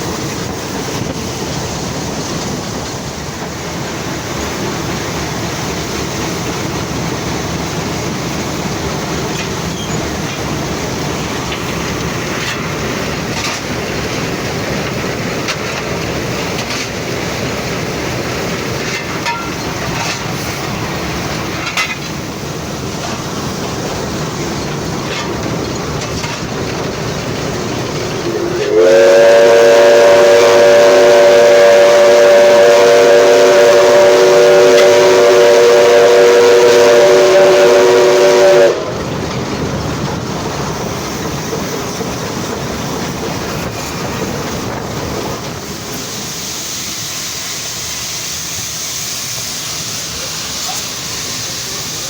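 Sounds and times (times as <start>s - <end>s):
steam locomotive running: 0.0s - 52.0s
steam whistle blast: 28.3s - 39.0s.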